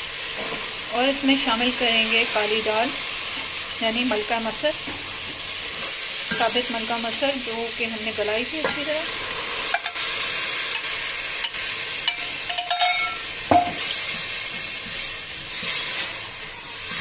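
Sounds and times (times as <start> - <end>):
oil sizzling in a pot: 0.0 - 17.0.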